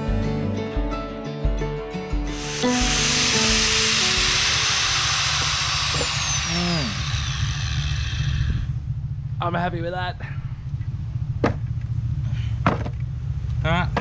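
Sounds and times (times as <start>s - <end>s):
background music: 0.0s - 5.5s
power tool cutting timber: 2.3s - 8.7s.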